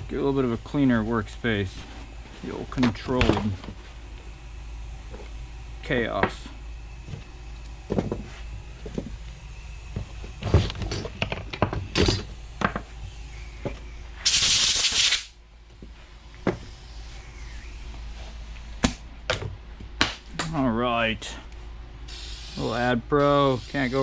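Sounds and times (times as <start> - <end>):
short hiss: 14.2 - 15.4, 22.1 - 24.0.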